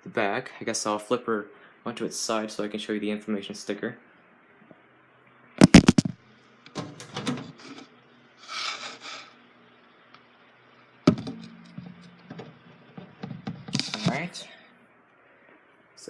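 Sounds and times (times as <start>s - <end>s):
box fan knocks and bumps: 11.1s - 14.2s.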